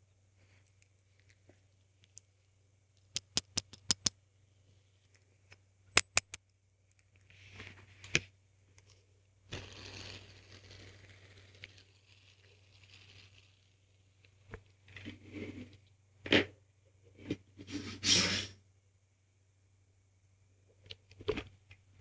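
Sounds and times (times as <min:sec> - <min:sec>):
soft scraping and rustling: 0:07.1 - 0:15.9.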